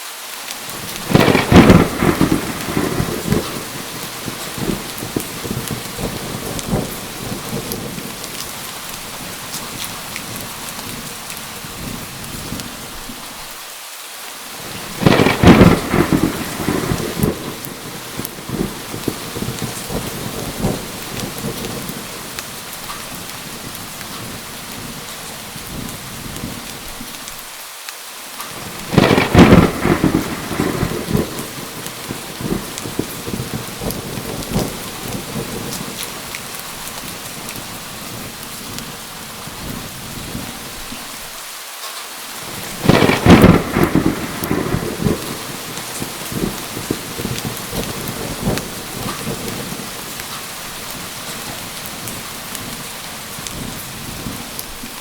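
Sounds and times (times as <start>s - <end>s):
heavy rain: 0.0s - 55.0s
thunder crashes: 0.7s - 8.3s, 14.6s - 26.7s, 28.5s - 38.9s, 42.4s - 52.8s.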